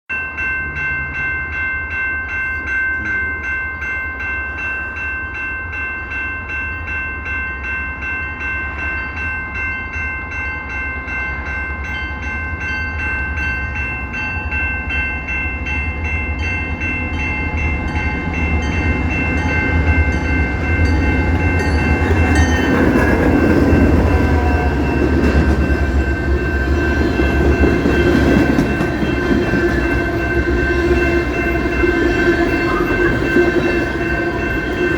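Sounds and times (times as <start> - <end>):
pulsing high ringing tone: 0.1 - 34.9
freight train rumbling past: 2.8 - 34.9.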